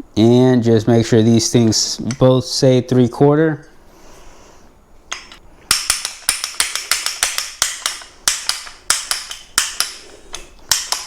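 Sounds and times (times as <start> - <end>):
ratcheting tube bender clicking: 5.1 - 11.0.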